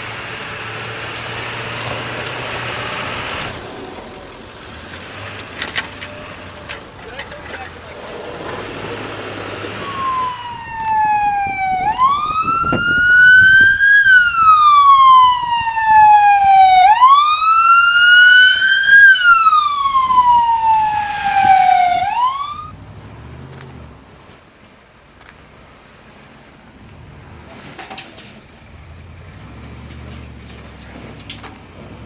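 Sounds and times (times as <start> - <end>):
emergency vehicle siren wailing: 8.3 - 22.9.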